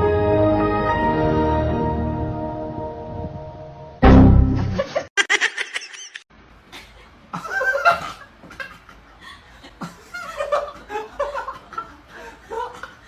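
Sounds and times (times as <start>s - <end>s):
person laughing: 4.6s - 6.2s, 6.8s - 13.0s.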